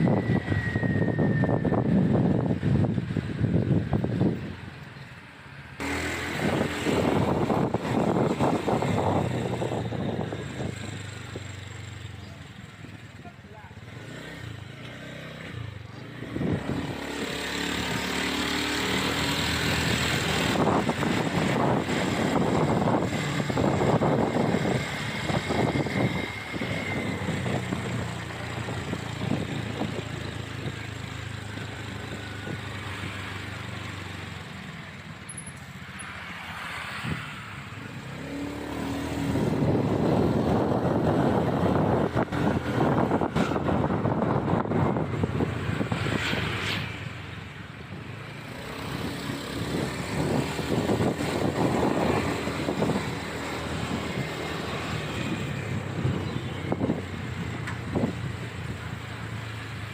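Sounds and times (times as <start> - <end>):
wind rushing over microphone: 0.0 - 4.8, 5.8 - 12.0, 15.6 - 30.9, 36.1 - 59.9.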